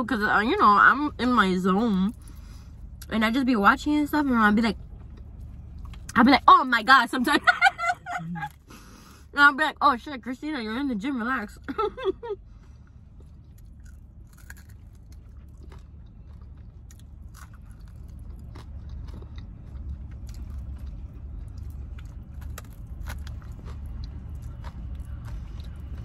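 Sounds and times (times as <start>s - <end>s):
low steady hum: 0.0s - 26.0s
person chewing and biting food: 12.6s - 26.0s.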